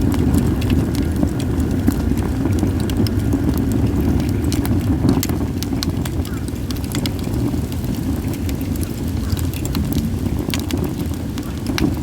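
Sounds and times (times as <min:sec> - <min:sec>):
wind rumble on microphone: 0:00.0 - 0:12.0
wood fire crackling: 0:00.0 - 0:12.0.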